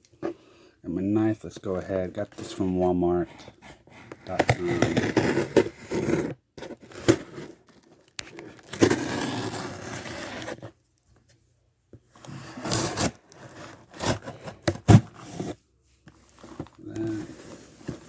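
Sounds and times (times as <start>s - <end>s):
scraping and tearing: 3.2s - 10.7s, 12.2s - 15.6s, 16.3s - 18.0s.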